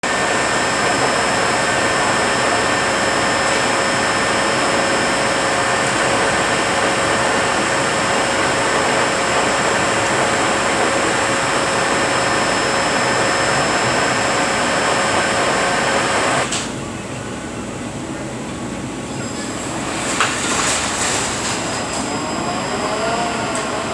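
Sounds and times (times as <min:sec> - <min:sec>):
high gear whine: 0:00.0 - 0:16.6, 0:18.9 - 0:23.9
transmission mechanical running: 0:00.0 - 0:17.1.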